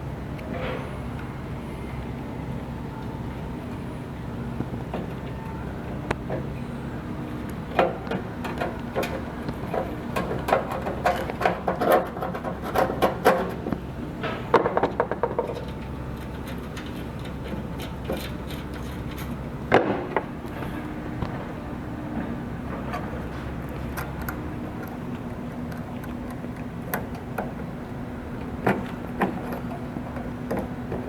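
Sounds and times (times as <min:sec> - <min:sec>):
steady low hum: 0:00.0 - 0:31.0
tools and parts rattling: 0:14.6 - 0:19.4.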